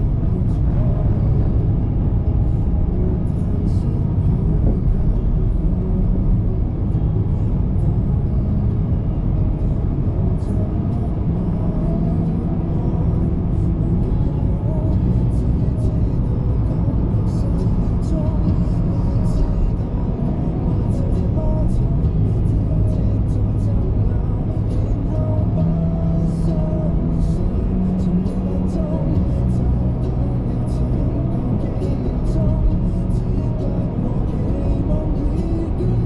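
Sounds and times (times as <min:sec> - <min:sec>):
car road and engine rumble: 0:00.0 - 0:36.0.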